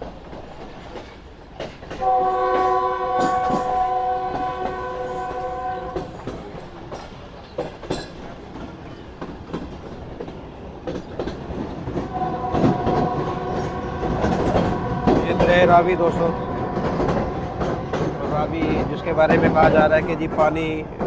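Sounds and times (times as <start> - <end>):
moving train rumble and clatter: 0.0 - 21.0
wheels clicking over rail joints: 0.0 - 21.0
train horn blast: 2.0 - 6.3, 12.0 - 19.8.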